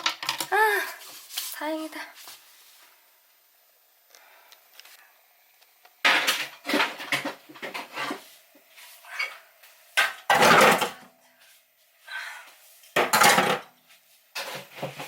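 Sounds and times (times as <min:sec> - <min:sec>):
dishes pots and cutlery clattering: 0:10.0 - 0:11.1, 0:13.0 - 0:13.7.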